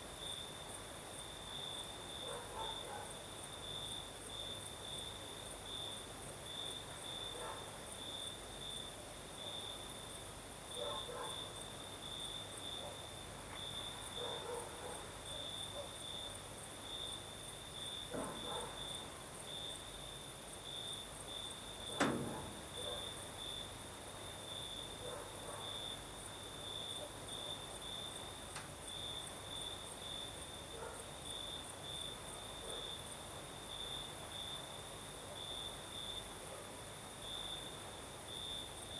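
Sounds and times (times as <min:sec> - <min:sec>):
crickets trilling: 0:00.2 - 0:36.4
sharp click: 0:21.9 - 0:23.0
high insect hiss: 0:25.6 - 0:30.6.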